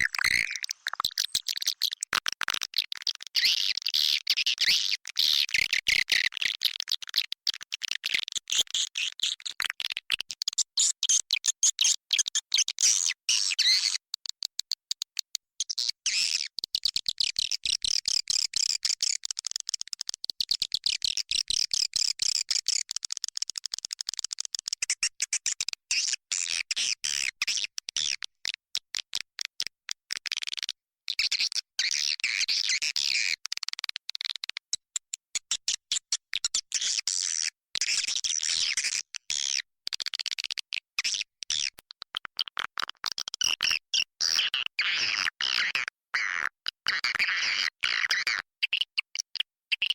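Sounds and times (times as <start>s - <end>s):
swiftlets twittering and chirping: 0.0s - 2.0s.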